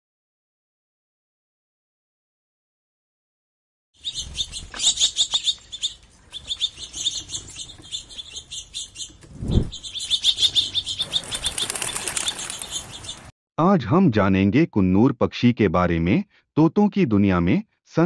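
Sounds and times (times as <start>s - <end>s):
birds chirping: 4.0s - 13.3s.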